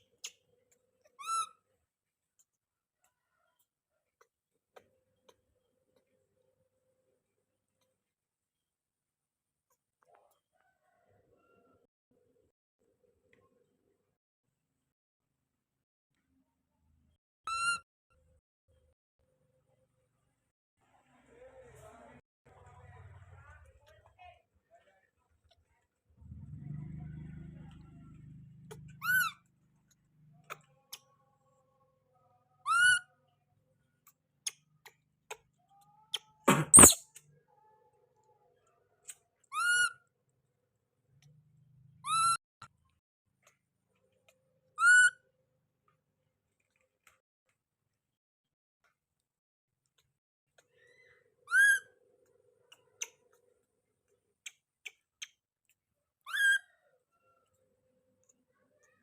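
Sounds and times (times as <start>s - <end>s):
baby monkey high-pitched calls: 1.1s - 1.6s, 17.5s - 17.8s, 28.7s - 29.5s, 32.6s - 33.2s, 36.0s - 37.0s, 39.5s - 40.0s, 42.0s - 42.4s, 44.8s - 45.2s, 50.8s - 51.9s, 56.3s - 56.8s.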